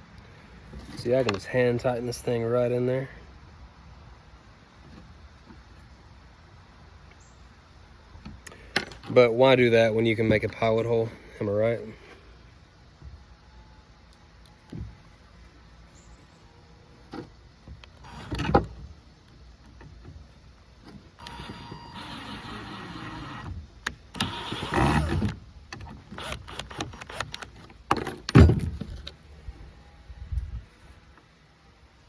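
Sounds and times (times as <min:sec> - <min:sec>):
cordless drill motor running: 0:21.2 - 0:23.5, 0:24.2 - 0:25.3, 0:26.2 - 0:27.4.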